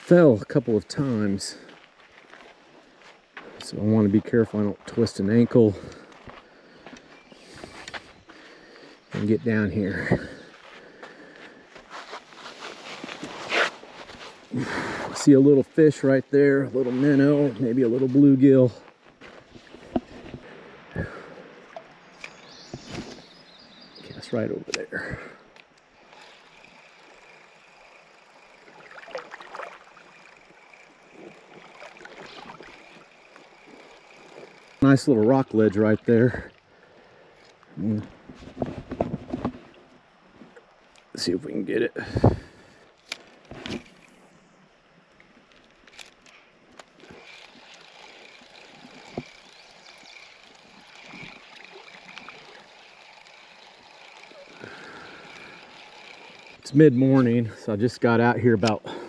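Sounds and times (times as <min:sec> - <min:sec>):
creek water gurgling: 0:19.6 - 0:23.1, 0:24.7 - 0:37.2, 0:46.9 - 0:59.0.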